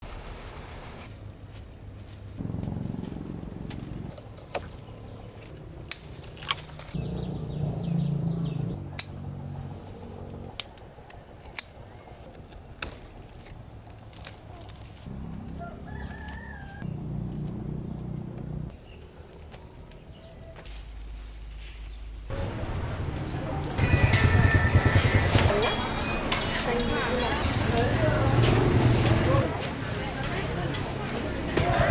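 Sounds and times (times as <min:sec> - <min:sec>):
rooster crowing: 0:15.2 - 0:17.3.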